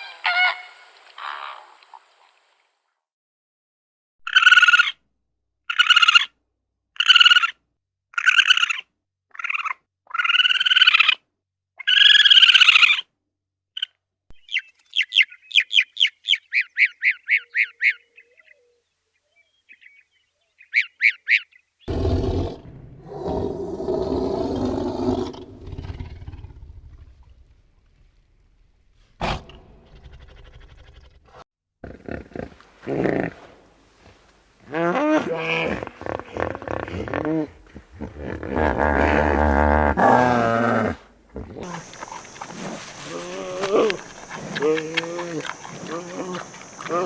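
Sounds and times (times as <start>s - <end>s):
goose honking: 0.0s - 1.6s.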